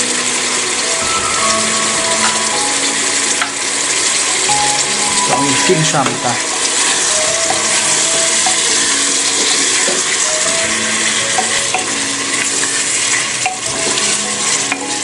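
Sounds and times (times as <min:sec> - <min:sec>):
meat frying in hot oil: 0:00.0 - 0:15.0.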